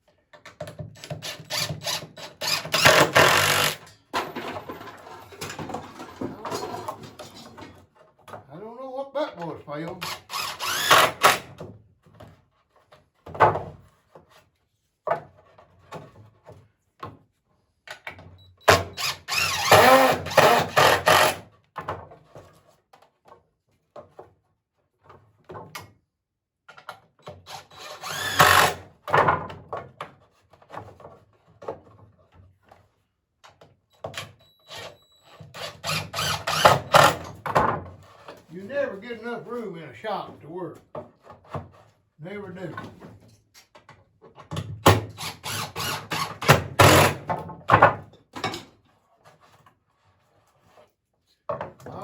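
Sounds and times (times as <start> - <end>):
cordless drill driving screws: 1.0 - 3.9, 10.0 - 11.5, 18.7 - 21.4, 27.5 - 28.8, 34.7 - 37.3, 45.0 - 47.2.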